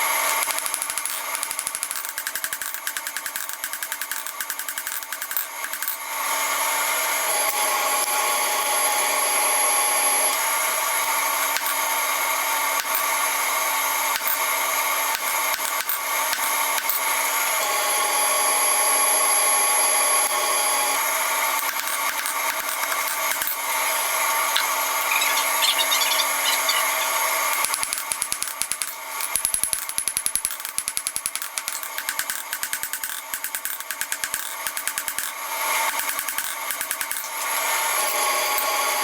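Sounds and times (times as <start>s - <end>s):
power tool grinding metal: 24.4s - 27.8s.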